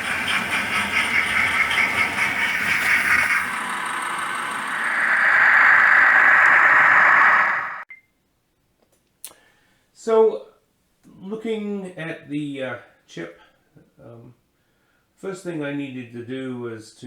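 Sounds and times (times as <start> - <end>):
steam hiss: 0.0 - 7.8
steam locomotive chuffing: 0.0 - 7.8.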